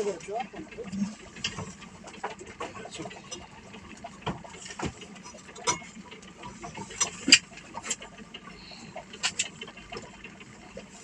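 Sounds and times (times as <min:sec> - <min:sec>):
sharp clicks and knocks: 0:00.2 - 0:08.2.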